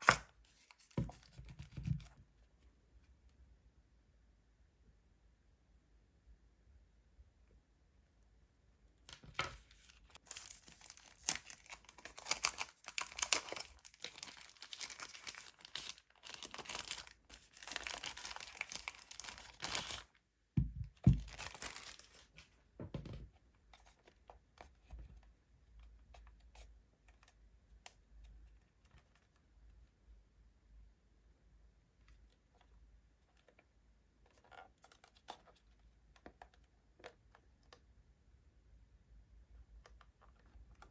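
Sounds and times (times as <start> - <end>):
plastic packaging crinkling: 9.3 - 20.2, 21.0 - 22.4.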